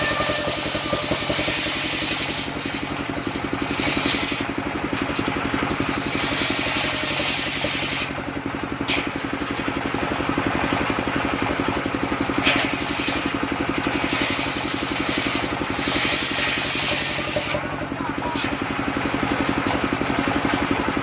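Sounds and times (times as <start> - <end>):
saw cutting wood hiss: 0.0 - 3.1, 6.0 - 8.1, 13.9 - 17.6
sawmill engine running: 0.0 - 21.0.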